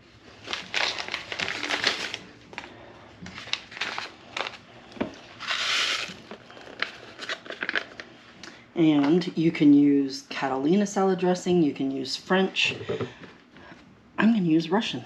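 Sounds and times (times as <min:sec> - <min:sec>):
packet crinkling and tearing: 0:00.2 - 0:04.7, 0:05.3 - 0:08.2.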